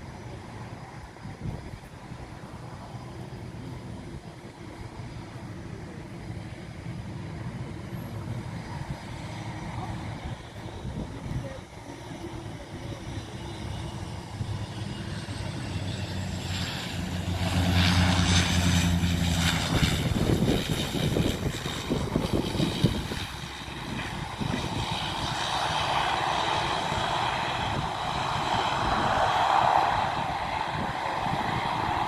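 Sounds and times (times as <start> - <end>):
aircraft engine drone: 0.0 - 32.0
rushing engine noise: 1.4 - 32.0
steady high engine tones: 1.9 - 32.0.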